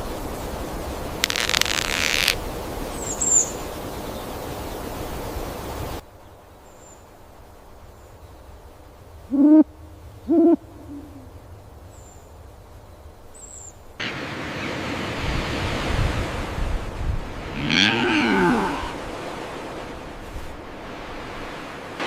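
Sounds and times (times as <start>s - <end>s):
forest ambience hiss: 0.0s - 22.0s
bird hooting: 9.3s - 11.4s.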